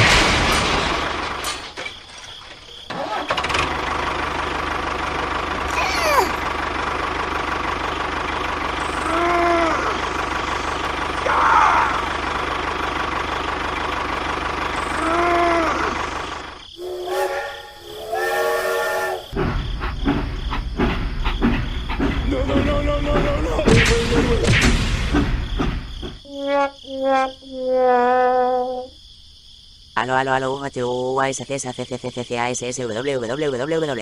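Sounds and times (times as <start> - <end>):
miniature train running hum: 3.0 - 24.4
stepped horn-like notes: 16.8 - 19.4
train whistle tooting: 16.8 - 19.4.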